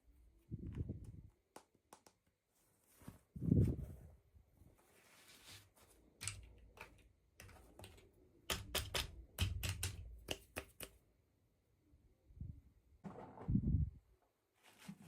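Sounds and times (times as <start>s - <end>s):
plastic pieces clicking and tapping: 6.2s - 11.0s.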